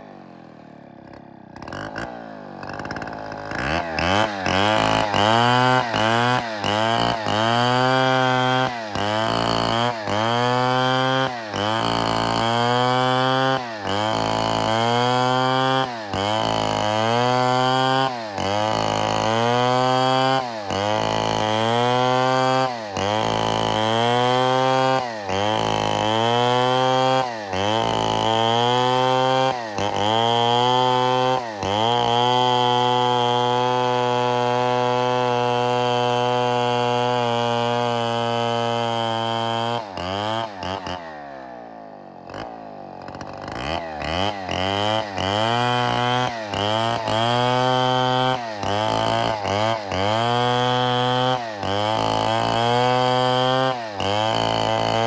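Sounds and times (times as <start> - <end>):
chainsaw revving under load: 0.0 - 55.0.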